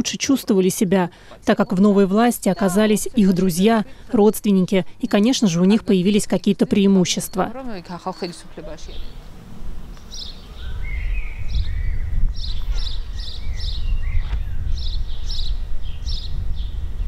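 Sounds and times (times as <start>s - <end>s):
small birds chirping: 0.5s - 4.3s, 5.1s - 17.0s
steady low rumble: 7.6s - 17.0s
low gliding whistles: 7.9s - 16.8s.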